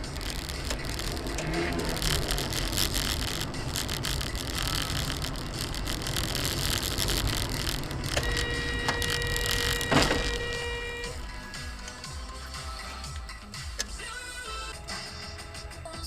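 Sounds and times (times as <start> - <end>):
small rattles and clicks: 0.0 - 10.6
car driving noise: 0.0 - 12.4
horn-like tone: 4.5 - 11.5.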